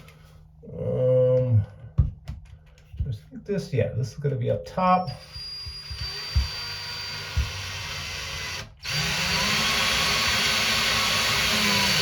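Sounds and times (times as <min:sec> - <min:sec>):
power drill driving screw: 0:05.1 - 0:12.0.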